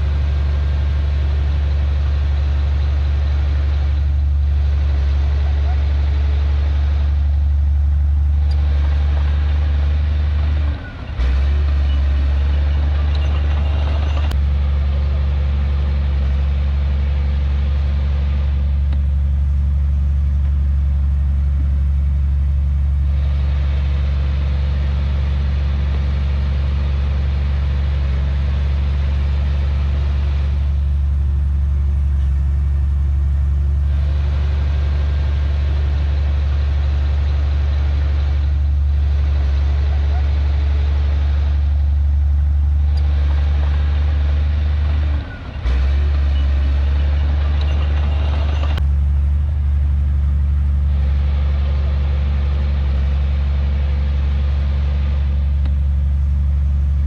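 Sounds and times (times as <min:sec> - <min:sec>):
heavy diesel engine droning: 0:00.0 - 0:57.0.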